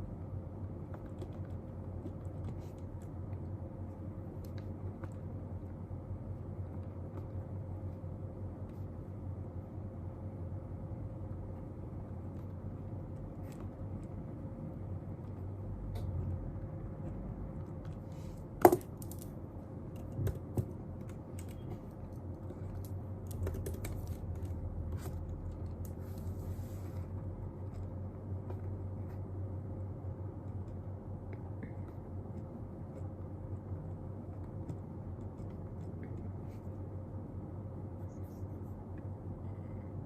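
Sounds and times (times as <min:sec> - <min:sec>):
steady low hum: 0:00.0 - 0:40.0
desk work clicks and taps: 0:17.0 - 0:26.0
soft rustle: 0:24.0 - 0:29.4.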